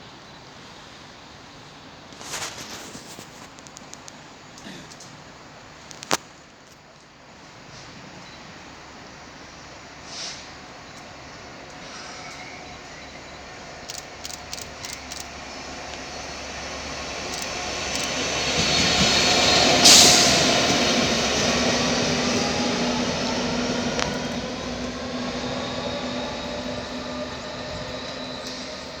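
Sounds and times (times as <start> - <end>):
diesel locomotive engine passing: 8.4 - 29.0
light clicks: 13.9 - 15.3, 17.3 - 18.2.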